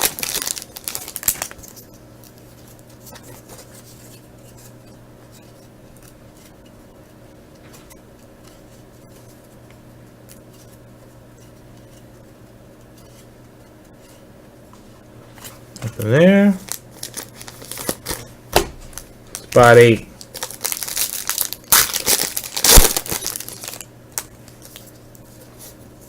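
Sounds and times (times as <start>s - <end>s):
wrapper crinkling: 0.0s - 2.8s, 16.0s - 25.2s
low steady hum: 0.0s - 26.0s.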